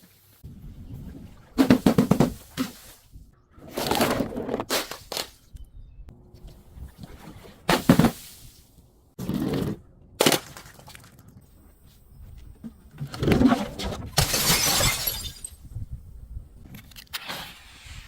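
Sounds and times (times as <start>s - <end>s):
objects crushed with crunching cracks: 13.0s - 15.6s.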